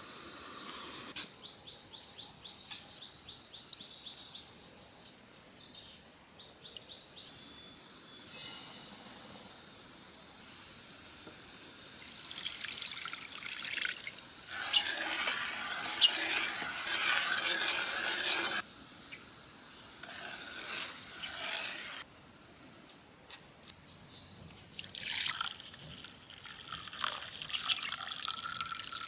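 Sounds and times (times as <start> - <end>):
high insect drone: 7.3 - 22.0.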